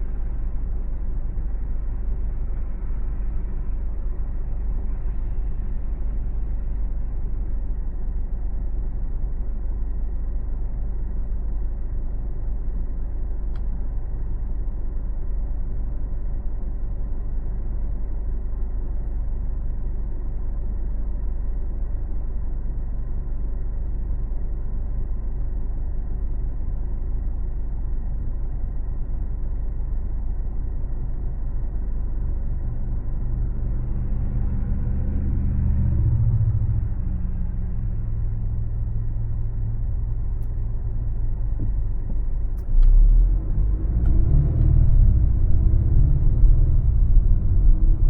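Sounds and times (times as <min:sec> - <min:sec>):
car road and engine rumble: 0:00.0 - 0:48.0
faint click: 0:13.5 - 0:13.7.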